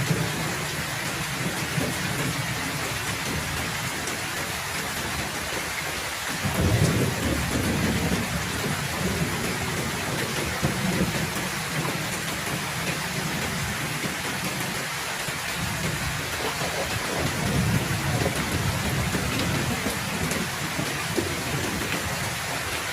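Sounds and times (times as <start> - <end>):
heavy rain falling: 0.0 - 22.9
low roll of thunder: 6.4 - 14.7, 15.5 - 22.3.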